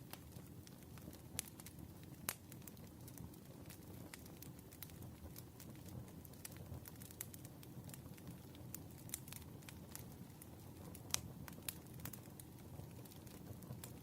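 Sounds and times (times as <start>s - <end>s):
wood fire crackling softly: 0.0s - 14.0s.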